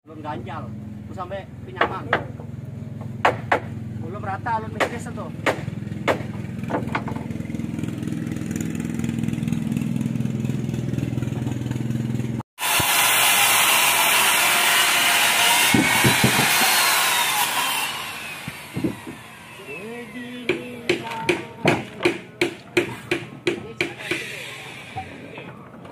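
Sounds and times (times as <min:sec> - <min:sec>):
sharp knocks: 0:01.8 - 0:03.8, 0:04.8 - 0:07.3, 0:15.6 - 0:16.8, 0:20.5 - 0:24.2
small engine running: 0:05.2 - 0:21.6, 0:23.8 - 0:25.6
power tool working wood: 0:12.6 - 0:22.2, 0:23.1 - 0:25.6.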